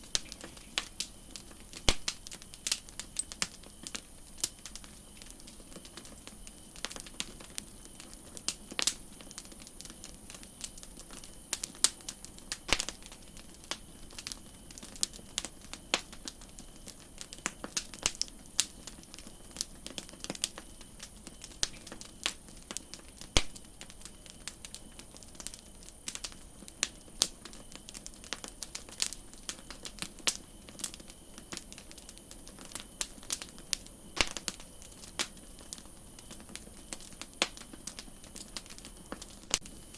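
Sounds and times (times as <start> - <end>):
campfire crackling: 0.0 - 39.9
faint steady hiss: 0.0 - 39.9.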